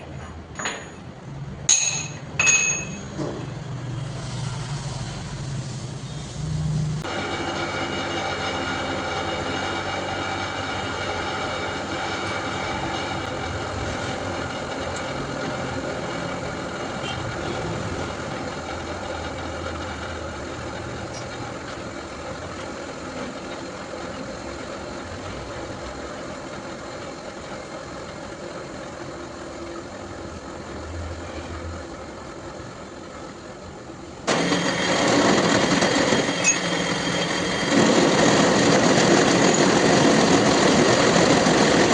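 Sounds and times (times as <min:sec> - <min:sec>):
loud harsh noise: 0:01.8 - 0:20.9, 0:34.2 - 0:41.9
milling machine humming: 0:03.7 - 0:41.9.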